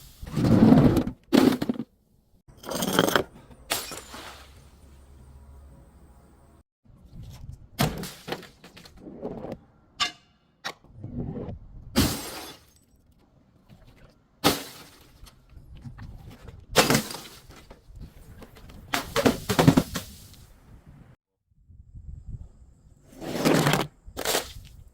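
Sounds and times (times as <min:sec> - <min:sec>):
glass bottles breaking: 0:02.6 - 0:04.7.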